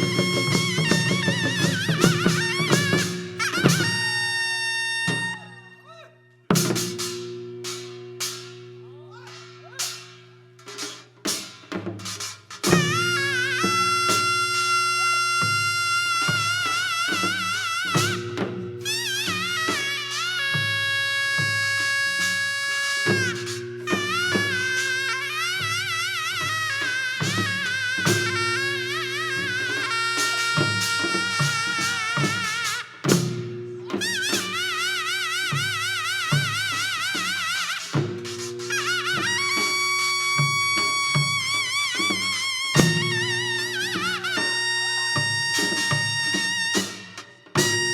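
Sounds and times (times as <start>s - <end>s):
drum strikes: 0.0s - 4.3s, 6.5s - 47.9s
high wind instrument note: 0.0s - 5.9s, 12.7s - 33.3s, 38.7s - 47.9s.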